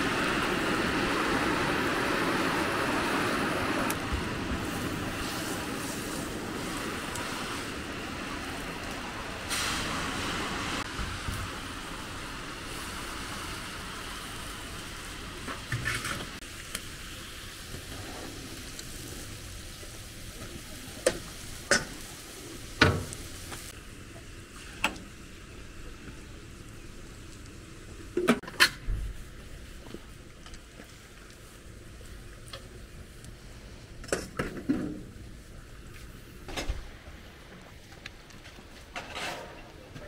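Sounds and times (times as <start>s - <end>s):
food sizzling in a pot: 9.5s - 28.2s.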